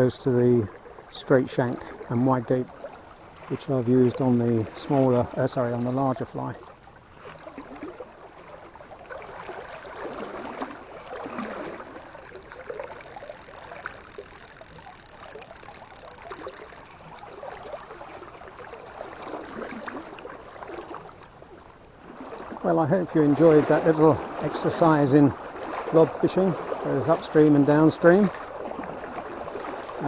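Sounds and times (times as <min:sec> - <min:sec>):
river water flowing and gurgling: 0:00.0 - 0:30.0
high rapidly pulsing chirr: 0:12.5 - 0:17.1.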